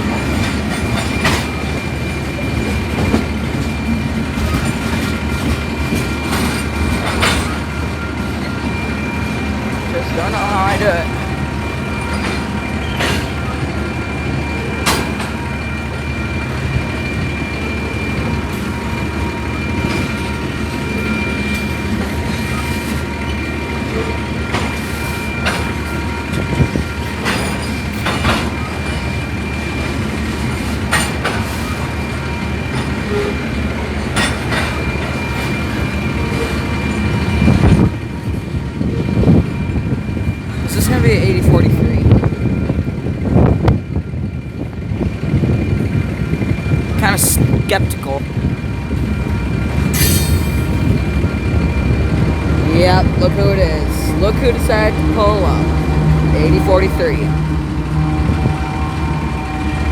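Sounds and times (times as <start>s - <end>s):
wheels clanking over rails: 0.0s - 44.0s
freight train rumbling: 0.0s - 59.9s.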